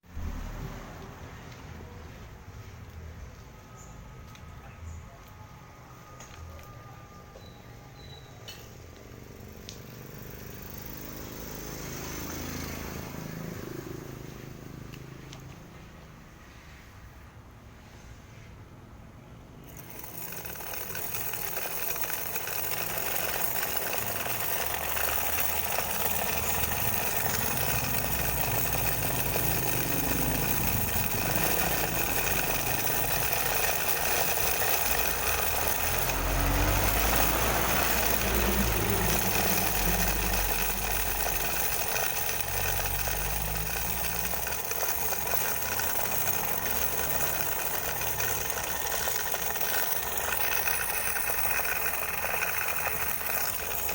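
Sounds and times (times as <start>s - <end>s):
small motor rattling wire on metal: 8.4s - 16.2s, 19.5s - 53.9s.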